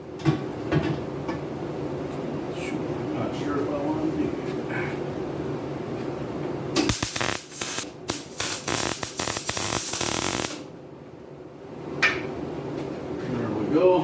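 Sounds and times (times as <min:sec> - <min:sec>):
welding arc crackling and hissing: 0:06.8 - 0:10.7.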